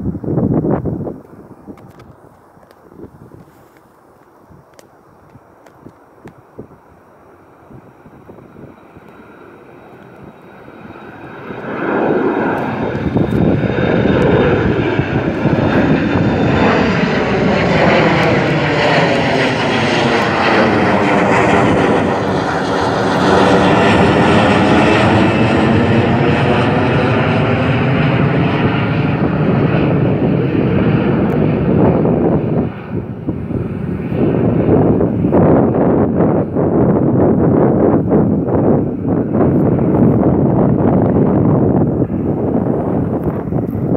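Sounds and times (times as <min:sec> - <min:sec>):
jet engines roaring: 0:05.6 - 0:43.9.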